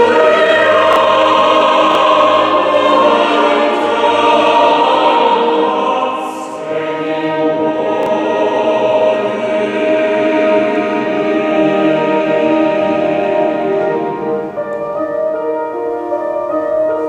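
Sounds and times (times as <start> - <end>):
church choir singing: 0.0 - 17.0.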